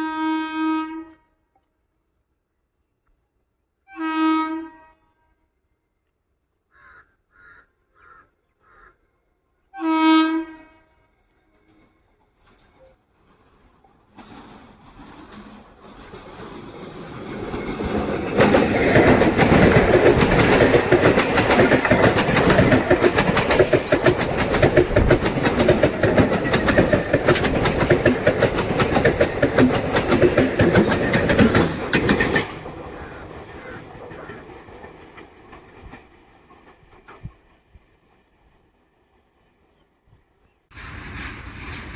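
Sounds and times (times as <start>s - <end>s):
train passing: 10.3s - 41.9s
wheels clattering over rail joints: 12.4s - 37.8s.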